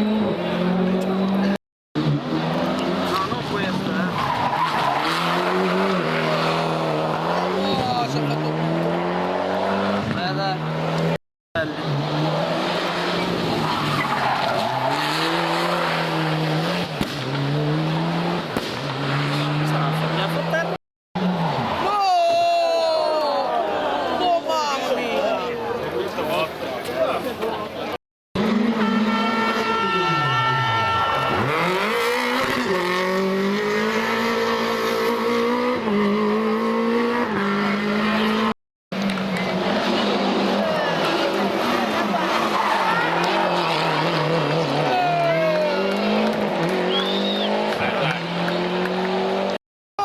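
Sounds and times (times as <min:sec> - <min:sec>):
rally car engine at high revs: 0:00.0 - 0:21.8, 0:28.4 - 0:29.8, 0:31.2 - 0:49.6
tyres skidding on road: 0:02.2 - 0:10.1, 0:11.8 - 0:21.9, 0:28.4 - 0:49.6.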